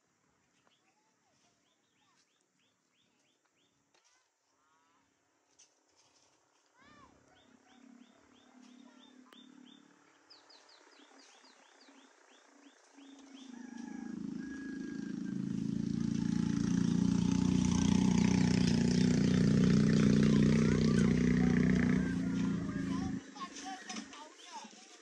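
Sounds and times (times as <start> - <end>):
bird chirping: 7.0 - 24.7.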